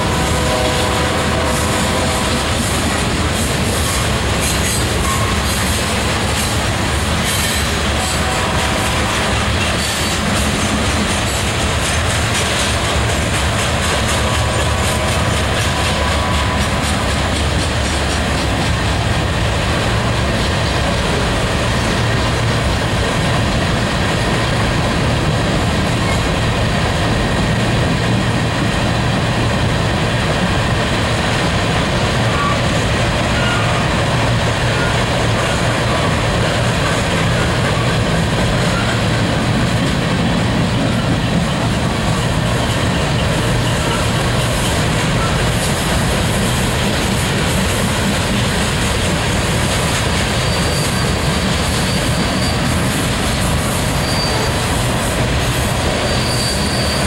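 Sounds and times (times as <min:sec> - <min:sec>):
steel wheels running on rail: 0:00.0 - 0:57.0.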